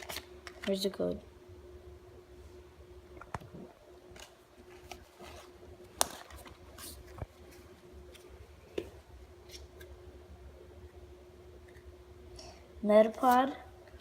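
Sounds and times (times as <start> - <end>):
card pack clicks and rustles: 0.0 - 0.8
faint steady hum: 0.0 - 14.0.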